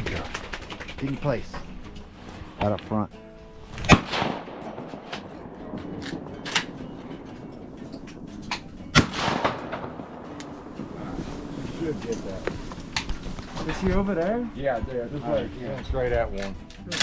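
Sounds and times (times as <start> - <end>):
shotgun blasts: 3.8 - 7.4, 8.4 - 10.7.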